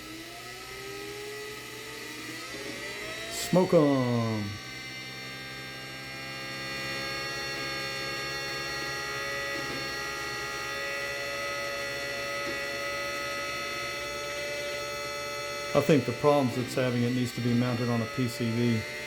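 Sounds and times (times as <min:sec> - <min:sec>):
electric motor hum and whine: 0:00.0 - 0:19.0.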